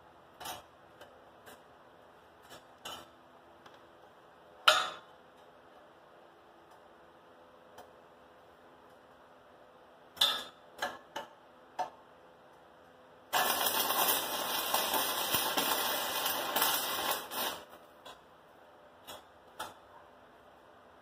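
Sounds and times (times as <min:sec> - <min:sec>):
welding arc crackling: 0:13.3 - 0:18.2.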